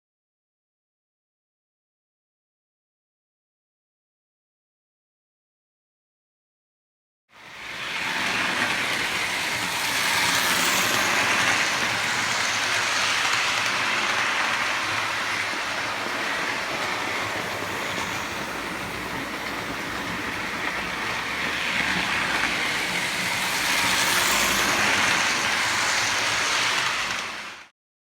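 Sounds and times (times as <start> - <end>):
wheels rolling on rails: 7.4 - 27.7
model train motor whirring: 7.6 - 27.7.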